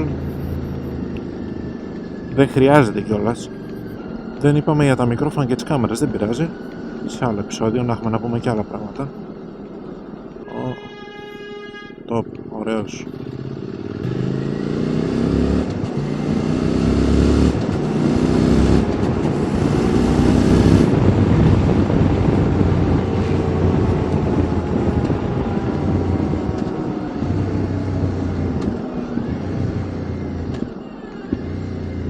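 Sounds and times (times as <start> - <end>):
motorcycle engine accelerating: 0.0 - 32.0
wind rushing: 17.5 - 31.6.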